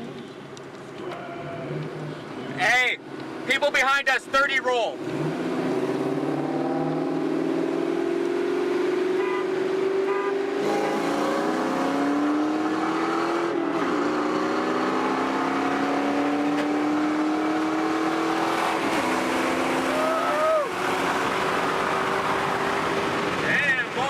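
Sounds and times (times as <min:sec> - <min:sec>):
car engine accelerating hard: 0:05.0 - 0:24.0.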